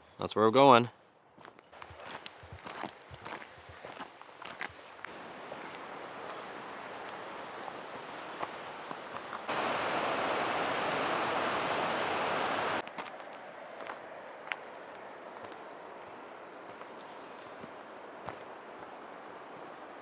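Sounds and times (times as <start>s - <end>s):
rushing stream water: 1.8s - 20.0s.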